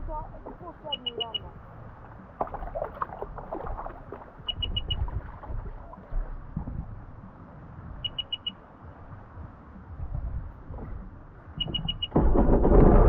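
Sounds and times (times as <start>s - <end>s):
low rumble of water and wind: 0.0s - 13.0s
short high beeps: 0.8s - 1.5s, 4.5s - 5.1s, 8.0s - 8.6s, 11.6s - 12.1s.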